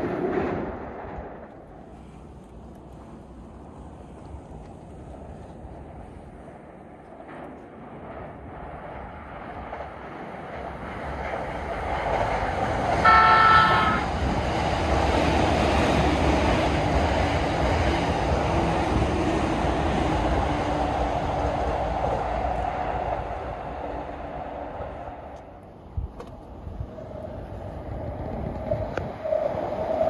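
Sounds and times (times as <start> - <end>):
electric train rumbling past: 0.0 - 30.0
train horn blast: 13.0 - 14.2.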